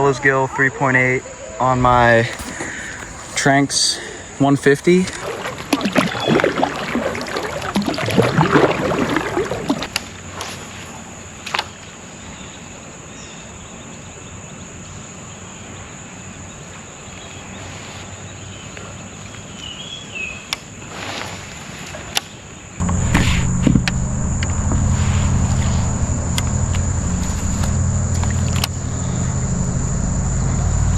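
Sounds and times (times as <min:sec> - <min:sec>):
insect chorus: 0:00.0 - 0:30.9
loud low rumble: 0:22.8 - 0:30.9.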